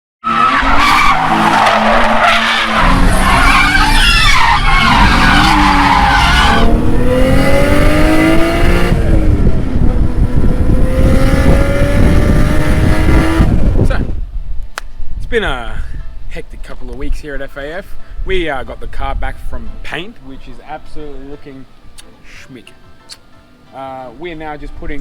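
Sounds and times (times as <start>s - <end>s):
tyres squealing: 0.2s - 6.7s
car engine revving hard: 0.3s - 13.8s.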